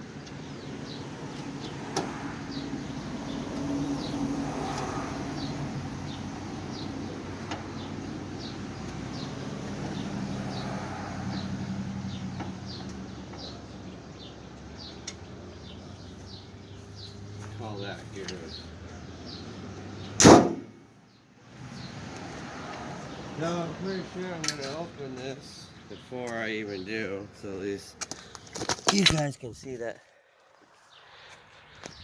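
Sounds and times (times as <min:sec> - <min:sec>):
sharp knocks: 0:20.2 - 0:20.8.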